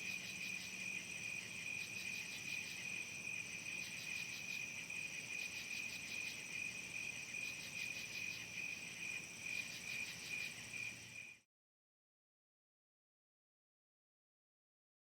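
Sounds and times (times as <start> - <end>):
rapid pulsing insect chirps: 0.0 - 11.4
faint high insect tones: 0.0 - 11.5.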